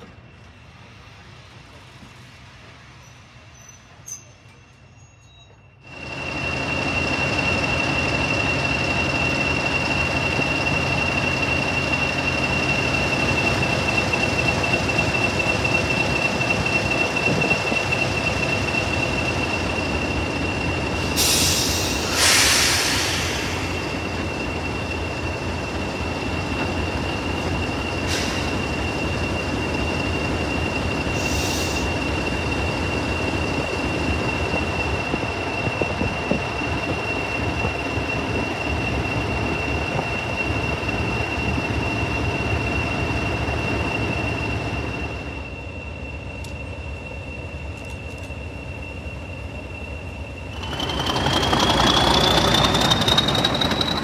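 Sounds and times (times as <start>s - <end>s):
diesel train running: 0.0s - 54.0s
high wheel squeal: 3.0s - 54.0s
short hissing bursts: 21.2s - 23.6s.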